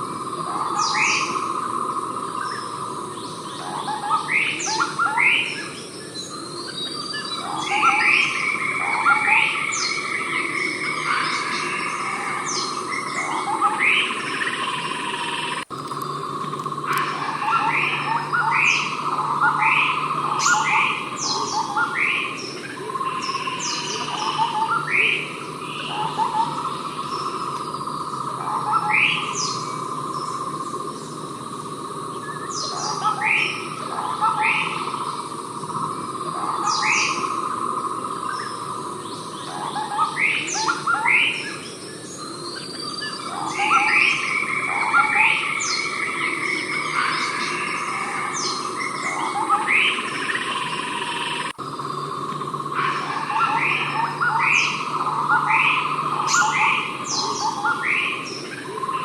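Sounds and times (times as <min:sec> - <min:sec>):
insects droning: 0:00.0 - 0:59.0
bird calling in upward notes: 0:03.4 - 0:30.4, 0:38.2 - 0:59.0.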